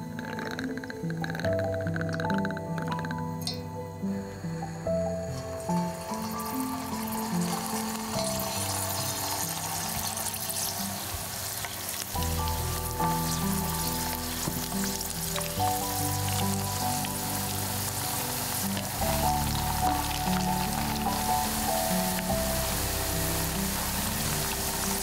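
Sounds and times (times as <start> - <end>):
background music with bass: 0.0 - 25.0
food sizzling in a pan: 5.5 - 25.0.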